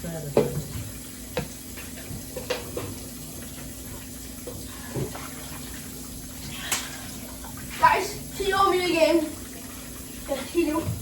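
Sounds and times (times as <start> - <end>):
tap running into sink: 0.3 - 5.7.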